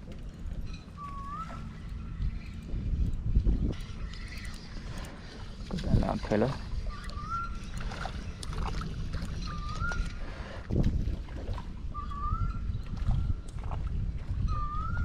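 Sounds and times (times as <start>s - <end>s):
low steady rumble: 0.0s - 15.0s
bird's rising whistle: 1.0s - 2.2s, 6.8s - 7.8s, 9.4s - 10.3s, 11.9s - 13.4s, 14.5s - 15.0s.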